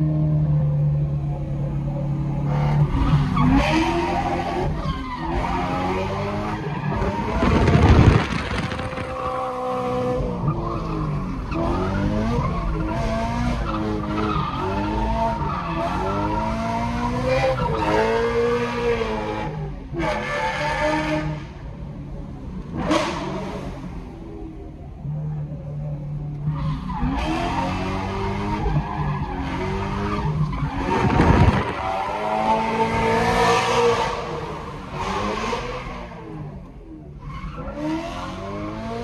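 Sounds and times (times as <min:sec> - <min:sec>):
car engine revving: 0:00.0 - 0:24.2, 0:26.4 - 0:39.0
tyre and road noise: 0:00.0 - 0:39.0
loud rush of noise: 0:07.2 - 0:10.2.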